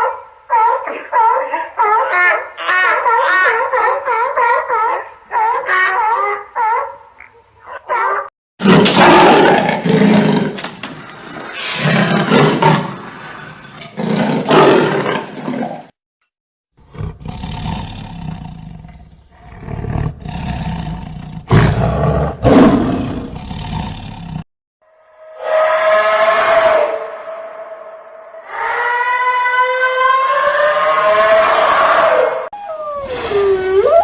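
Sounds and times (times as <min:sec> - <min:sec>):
big cat roaring: 0:16.9 - 0:24.4.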